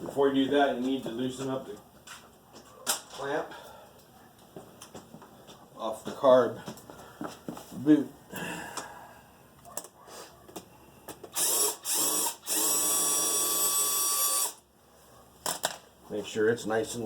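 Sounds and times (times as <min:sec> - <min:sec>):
power drill spinning: 0:11.3 - 0:14.7.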